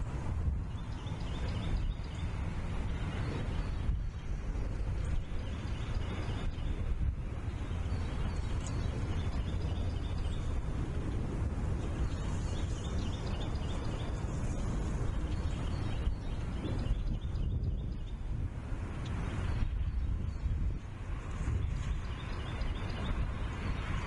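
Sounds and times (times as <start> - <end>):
wind rumble: 0.0 - 24.0
birds chirping: 0.7 - 3.8.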